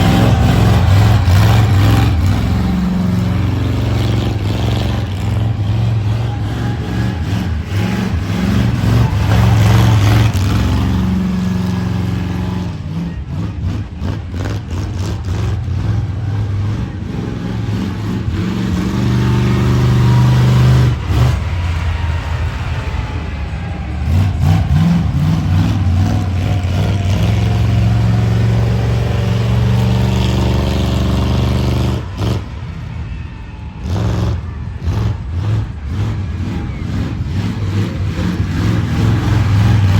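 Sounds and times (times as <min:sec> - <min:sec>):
monster truck engine revving: 0:00.0 - 0:39.9.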